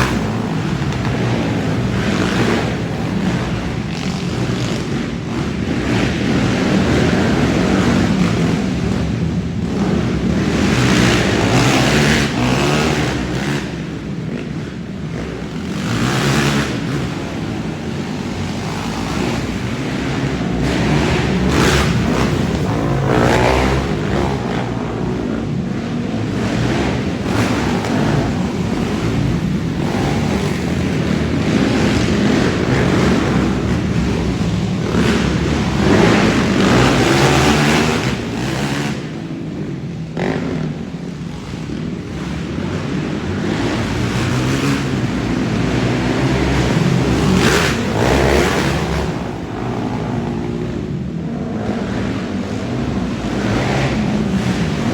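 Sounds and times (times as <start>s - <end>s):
quad bike engines revving: 0.0s - 54.9s.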